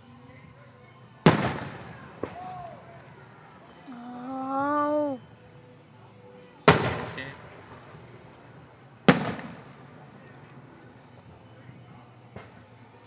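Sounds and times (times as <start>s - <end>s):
crickets chirping: 0.0s - 13.0s
firework bangs: 1.2s - 3.4s, 6.6s - 11.3s.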